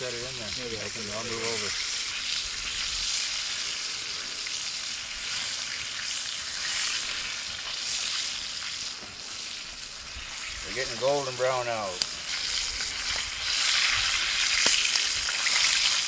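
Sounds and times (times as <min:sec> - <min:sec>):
fish sizzling in a frying pan: 0:00.0 - 0:16.0.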